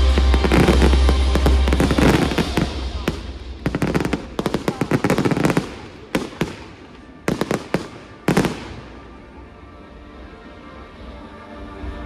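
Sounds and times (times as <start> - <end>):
fireworks bangs and crackles: 0.0 - 9.4.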